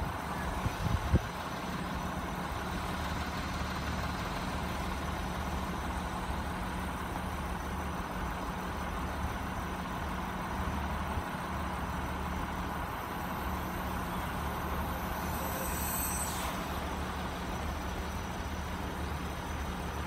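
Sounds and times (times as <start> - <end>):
car engines idling: 0.0 - 20.0
high hiss: 14.6 - 18.4.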